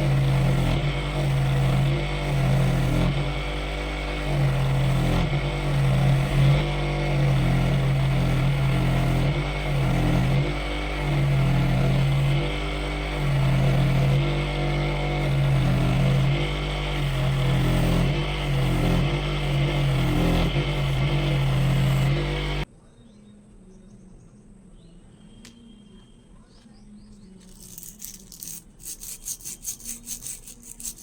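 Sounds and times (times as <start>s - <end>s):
power tool motor running: 0.0s - 22.7s, 27.4s - 31.0s.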